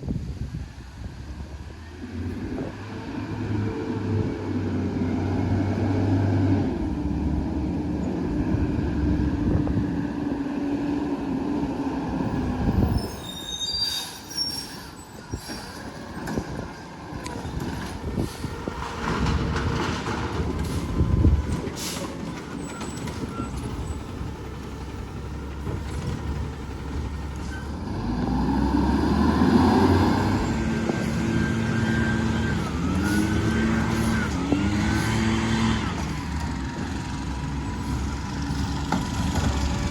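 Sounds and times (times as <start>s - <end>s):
high metallic squeals: 12.7s - 16.2s
garbage truck engine: 13.7s - 39.9s.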